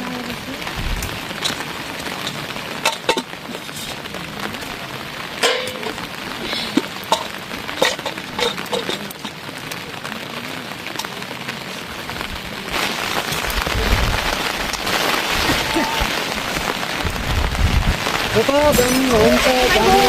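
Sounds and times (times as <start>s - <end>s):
rain falling: 0.0s - 20.0s.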